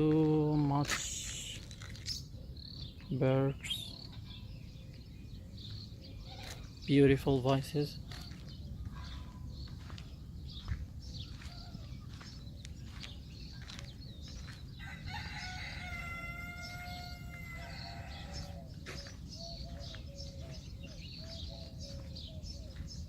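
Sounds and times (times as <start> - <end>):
small birds chirping: 0.0 - 23.0
rooster crowing: 14.8 - 18.7.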